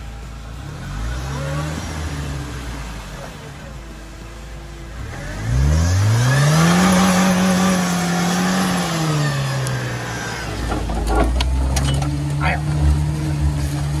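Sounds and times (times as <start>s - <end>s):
car engine revving hard: 0.5s - 3.4s, 4.9s - 10.8s.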